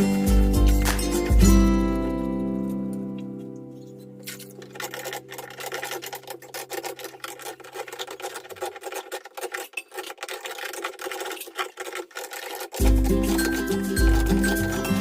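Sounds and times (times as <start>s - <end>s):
rasping scrapes: 3.8s - 15.0s.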